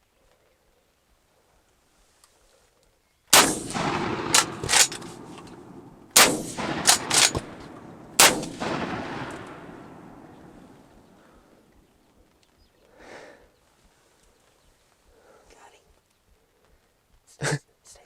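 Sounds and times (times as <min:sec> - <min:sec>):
short sharp cracks: 0:03.3 - 0:11.6
shotgun blasts with echo: 0:03.3 - 0:11.6.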